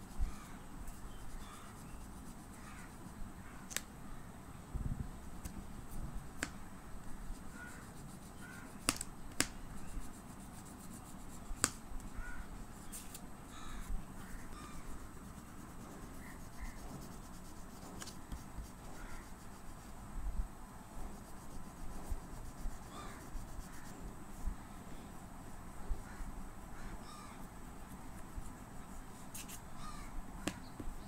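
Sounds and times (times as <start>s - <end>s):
low background noise: 0.0s - 31.0s.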